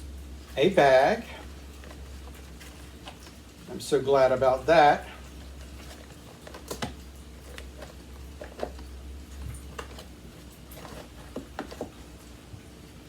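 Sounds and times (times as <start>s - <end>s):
plastic parts clicking and tapping: 5.6s - 8.9s, 9.5s - 10.1s, 10.8s - 12.0s.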